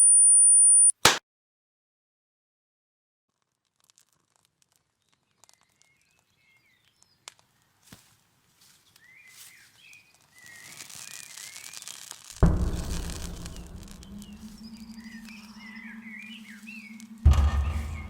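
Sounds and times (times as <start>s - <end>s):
small birds chirping: 8.7s - 11.9s, 13.3s - 18.0s.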